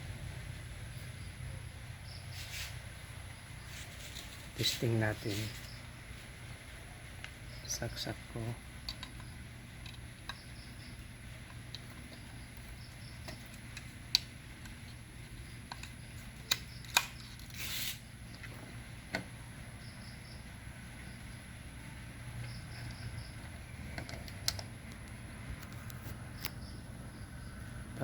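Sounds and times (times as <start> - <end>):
faint low hum: 0.0 - 28.0
sharp clicks and knocks: 8.8 - 15.0, 23.9 - 26.6.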